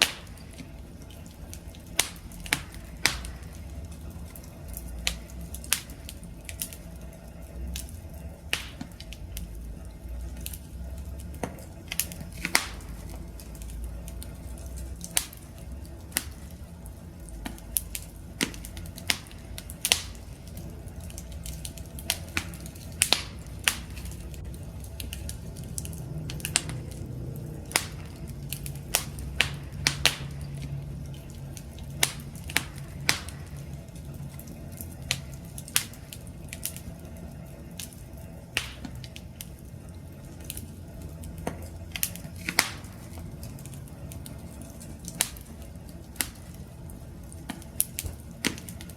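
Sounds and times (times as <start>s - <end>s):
campfire crackling pops: 0.0s - 48.9s
low rumble of fire: 0.0s - 48.9s.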